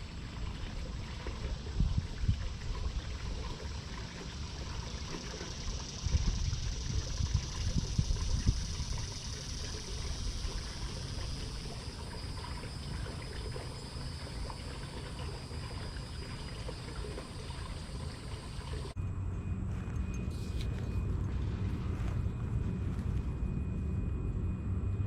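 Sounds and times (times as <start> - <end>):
water trickling: 0.0 - 19.0.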